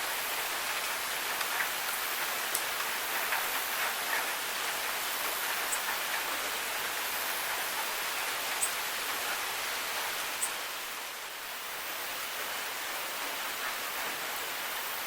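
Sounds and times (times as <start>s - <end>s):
steady rain falling: 0.0s - 15.0s
sharp drip ticks: 0.7s - 6.4s.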